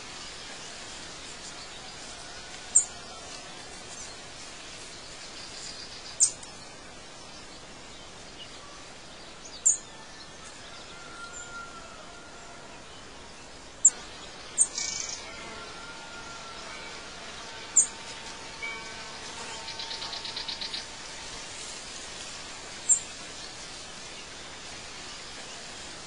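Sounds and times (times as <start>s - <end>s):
outdoor background hiss: 0.0s - 26.0s
birds chirping: 12.7s - 26.0s.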